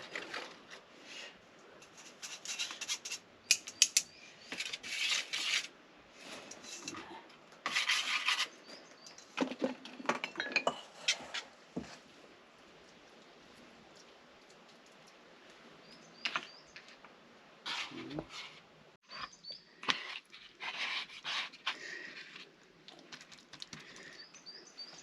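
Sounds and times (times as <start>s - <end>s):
utensils scraping a bowl: 6.4s - 8.6s.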